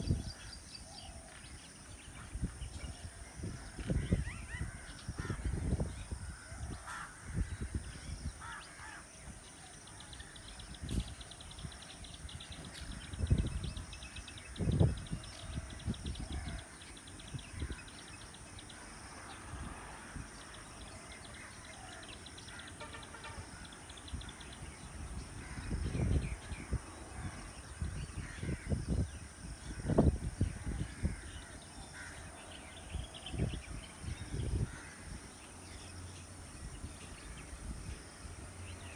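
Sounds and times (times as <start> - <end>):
birds calling: 0.0 - 38.9.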